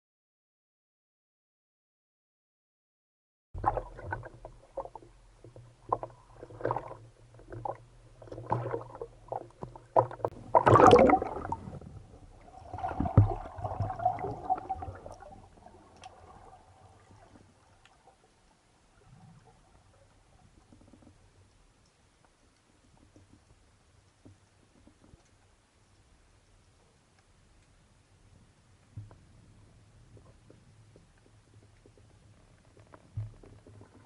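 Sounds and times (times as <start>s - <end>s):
water sloshing and gurgling: 3.6s - 25.6s, 28.8s - 34.0s.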